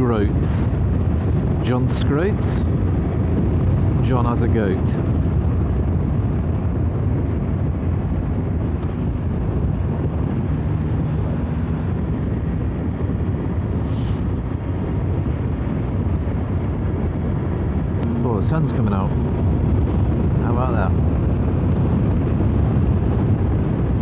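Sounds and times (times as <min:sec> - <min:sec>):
motorcycle engine droning: 0:00.0 - 0:24.0
wind rush on microphone: 0:00.0 - 0:24.0.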